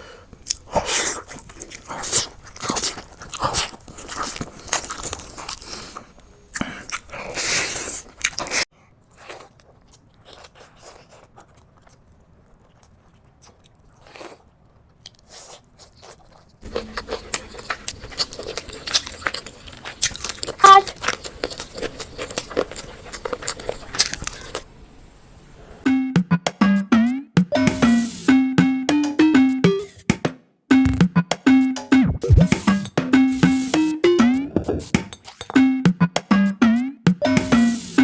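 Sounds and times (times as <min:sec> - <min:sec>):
wet chewing: 0:16.0 - 0:24.6, 0:32.2 - 0:36.3.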